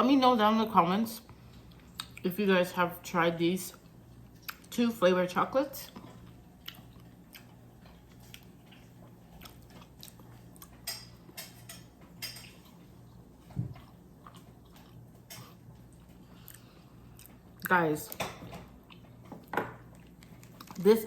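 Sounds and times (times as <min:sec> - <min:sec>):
person chewing: 0:01.5 - 0:02.2, 0:05.9 - 0:11.5, 0:12.2 - 0:17.7, 0:18.7 - 0:20.8.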